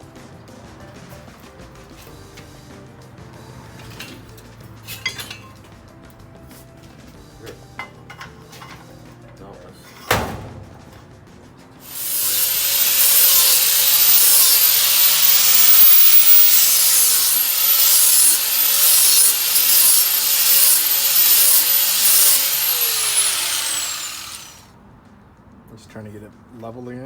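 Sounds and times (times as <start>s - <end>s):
angle grinder grinding metal: 11.8s - 24.7s.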